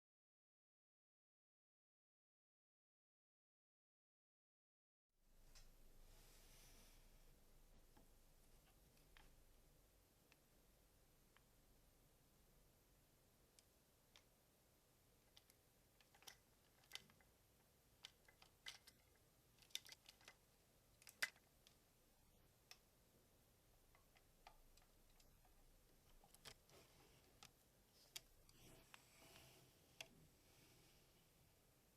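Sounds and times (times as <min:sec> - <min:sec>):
plastic toy parts clicking: 0:15.3 - 0:17.2, 0:18.0 - 0:20.4, 0:21.0 - 0:21.8, 0:23.9 - 0:26.7.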